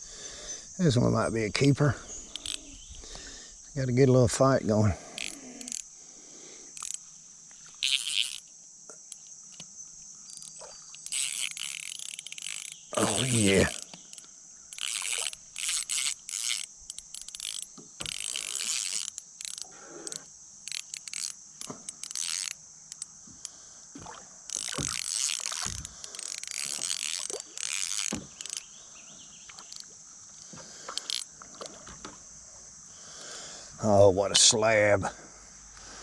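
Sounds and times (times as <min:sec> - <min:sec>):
fishing reel cranking: 0:01.5 - 0:02.8, 0:04.9 - 0:05.9, 0:06.8 - 0:08.5, 0:10.3 - 0:28.8, 0:29.5 - 0:29.9, 0:30.8 - 0:31.3.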